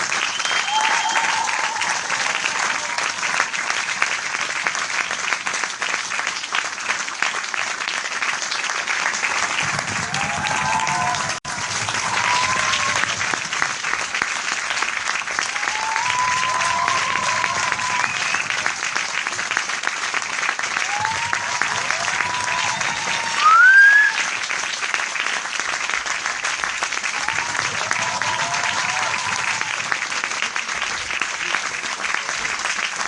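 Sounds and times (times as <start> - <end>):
crowd applauding: 0.0 - 33.0
voices whooping: 0.4 - 3.0, 10.0 - 13.2, 15.5 - 18.8, 20.8 - 24.2, 27.2 - 29.8.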